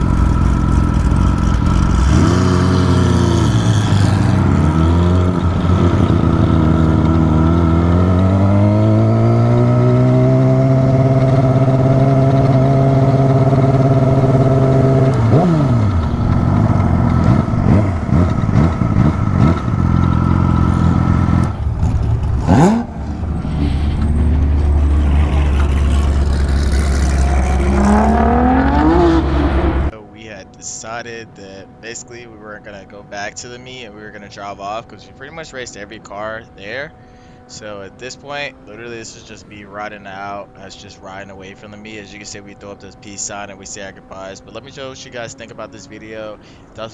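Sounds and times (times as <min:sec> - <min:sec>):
performance engine revving: 0:00.0 - 0:30.0
vehicles passing: 0:00.0 - 0:46.9.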